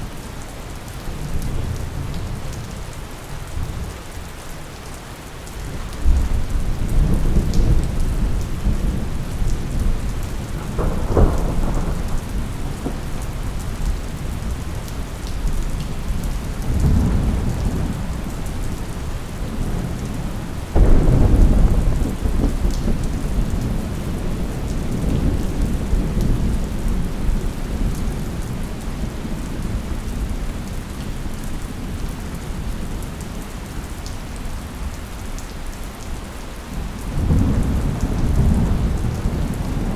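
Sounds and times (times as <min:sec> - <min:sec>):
heavy rain: 0:00.0 - 0:39.9
thunder rolling: 0:06.2 - 0:14.6, 0:20.7 - 0:27.0.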